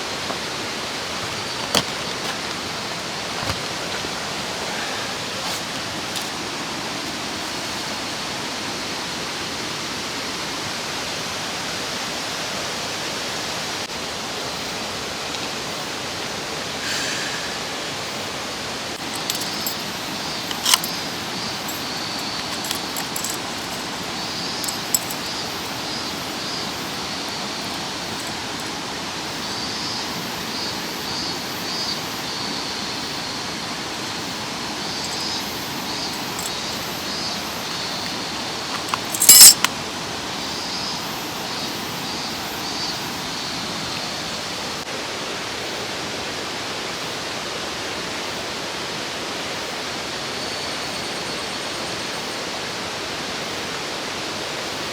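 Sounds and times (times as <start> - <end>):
camp gear clinking: 0.0 - 8.0, 19.0 - 29.4, 33.9 - 40.0
mountain stream flowing: 0.0 - 54.9.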